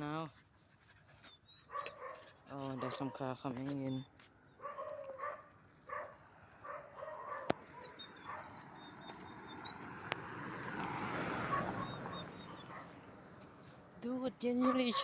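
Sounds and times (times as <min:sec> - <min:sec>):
dog barking: 0:01.6 - 0:03.3, 0:04.6 - 0:09.0, 0:11.3 - 0:13.0, 0:14.6 - 0:15.0
car passing: 0:04.7 - 0:15.0.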